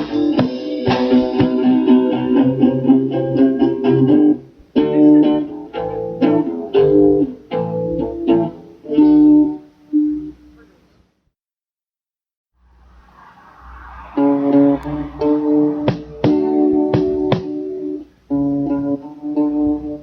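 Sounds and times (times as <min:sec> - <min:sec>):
guitar playing chords: 0:00.0 - 0:10.7, 0:14.2 - 0:20.0.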